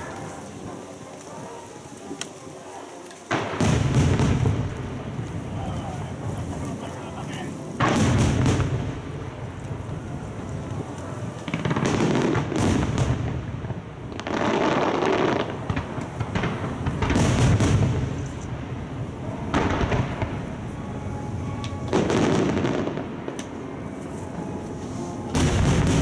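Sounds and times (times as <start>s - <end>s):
fireworks booming: 0.0s - 26.0s
echoing rumble: 7.6s - 26.0s.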